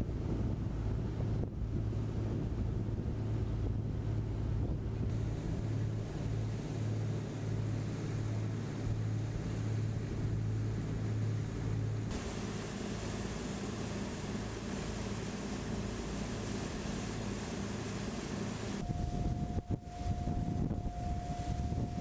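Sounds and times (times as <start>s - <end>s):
boat engine droning: 0.7s - 22.0s
wind buffeting microphone: 11.8s - 22.0s
water rushing past: 12.0s - 18.9s.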